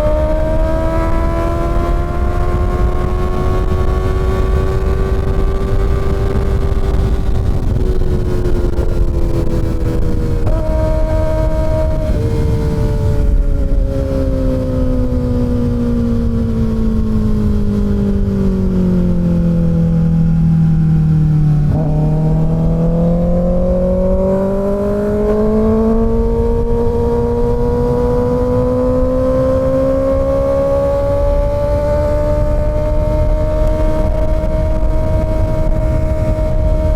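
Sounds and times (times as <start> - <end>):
low wind noise: 0.0 - 36.9
motorcycle engine revving: 0.0 - 36.9.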